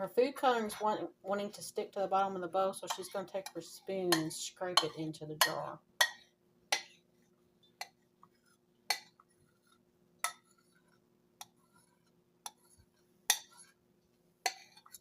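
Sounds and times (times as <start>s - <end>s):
spoon scraping and clinking bowl: 2.8s - 7.0s, 8.9s - 13.8s, 14.5s - 15.0s.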